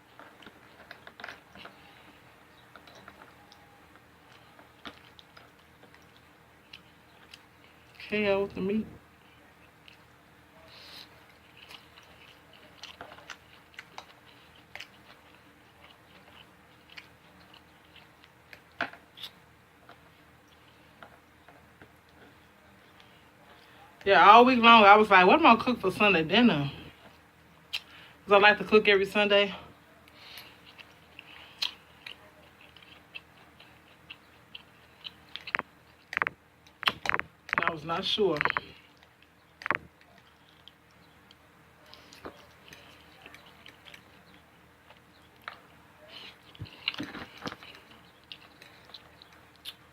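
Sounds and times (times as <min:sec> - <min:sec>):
person chewing food: 0:00.0 - 0:08.1, 0:09.1 - 0:24.0, 0:26.8 - 0:28.2, 0:30.0 - 0:37.7, 0:38.4 - 0:49.9.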